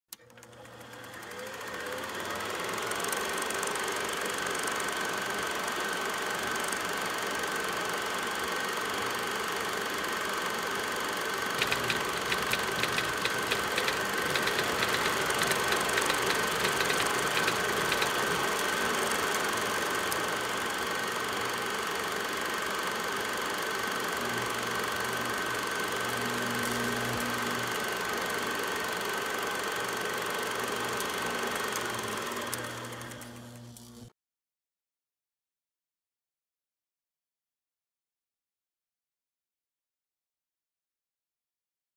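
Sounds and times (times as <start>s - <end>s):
mechanical running drone: 11.2s - 34.1s
rapid clicking: 11.4s - 20.3s.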